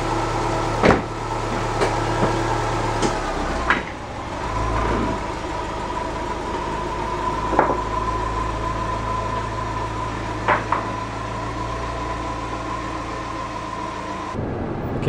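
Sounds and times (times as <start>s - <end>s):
car engine humming: 0.0s - 15.0s
sharp knocks: 0.8s - 1.1s
steady high tone: 5.2s - 15.0s.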